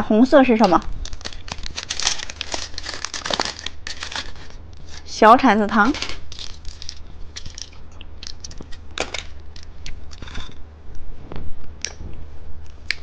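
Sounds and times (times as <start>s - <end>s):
plastic packaging crinkling: 0.6s - 5.1s, 5.7s - 10.6s.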